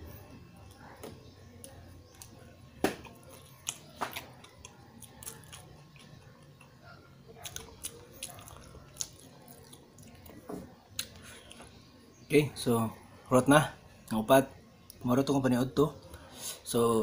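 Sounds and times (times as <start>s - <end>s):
person chewing sandwich: 1.6s - 11.8s.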